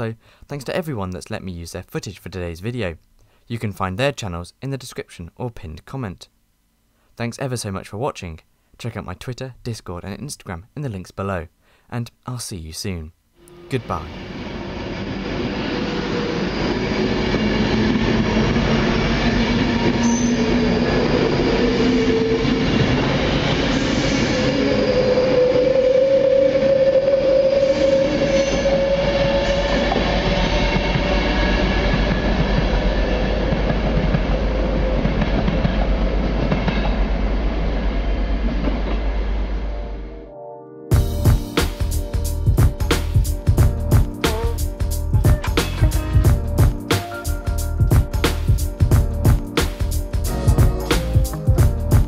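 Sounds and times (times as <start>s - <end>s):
faint train whine: 13.4s - 40.1s
electric train passing at speed: 13.5s - 40.0s.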